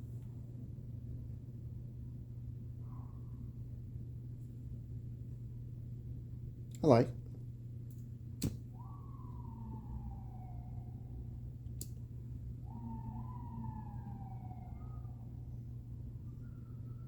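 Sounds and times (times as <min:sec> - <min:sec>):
steady low hum: 0:00.0 - 0:17.0
faint siren wailing: 0:02.7 - 0:03.8, 0:08.6 - 0:17.0.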